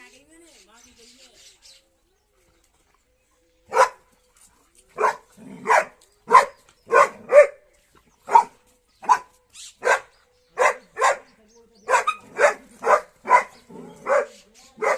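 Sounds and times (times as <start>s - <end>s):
dog barking: 3.7s - 4.0s, 5.0s - 7.6s, 8.3s - 11.3s, 11.9s - 14.9s.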